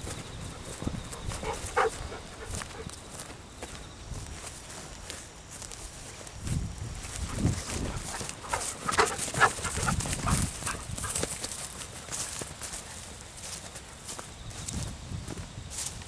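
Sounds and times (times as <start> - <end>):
wind buffeting microphone: 0.0 - 3.2, 6.4 - 11.4
footsteps: 0.0 - 14.8.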